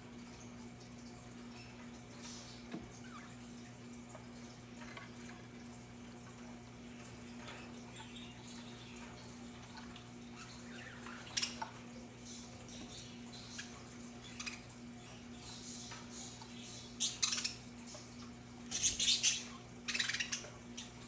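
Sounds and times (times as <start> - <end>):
budgerigars chirping: 10.2 - 17.7, 18.7 - 21.0.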